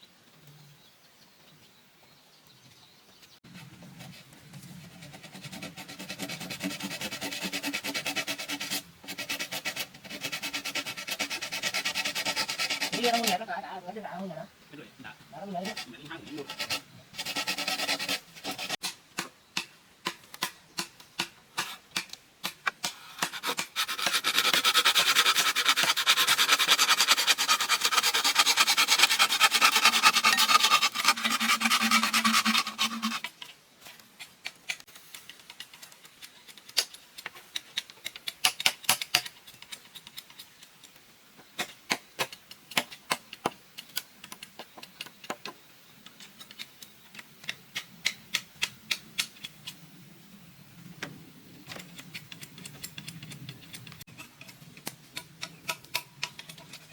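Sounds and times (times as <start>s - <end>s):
scraping on bamboo: 3.3s - 13.7s, 15.3s - 49.8s, 51.6s - 56.9s
sharp knocks and taps on bamboo: 18.8s - 24.6s, 34.0s - 49.8s.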